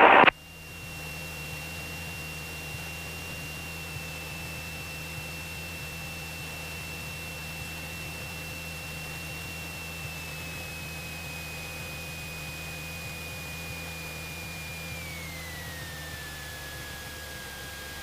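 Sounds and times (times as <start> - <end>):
high whine sliding down: 0.0 - 0.3
intercom hiss: 0.0 - 0.3
aircraft engine drone: 0.0 - 18.0.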